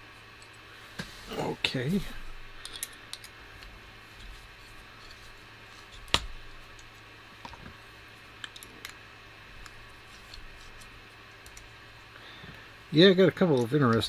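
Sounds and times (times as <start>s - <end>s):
small parts clicking: 2.6s - 3.4s.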